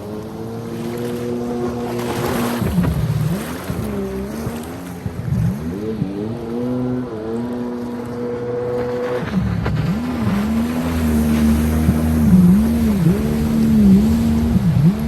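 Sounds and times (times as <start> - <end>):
jet ski engine running hard: 0.0 - 15.0.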